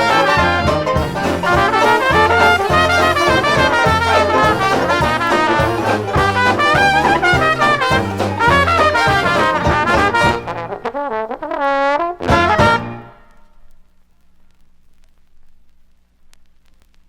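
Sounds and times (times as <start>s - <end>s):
bass beat: 0.0s - 10.6s, 12.3s - 13.0s
trombone: 0.0s - 13.6s
trumpet: 0.0s - 13.9s.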